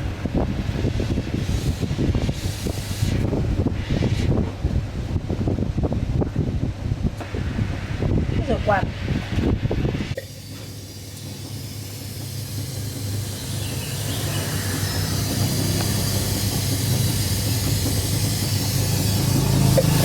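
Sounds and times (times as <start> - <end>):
machine hissing: 0.0 - 4.6, 7.2 - 20.0
machine humming: 10.2 - 20.0.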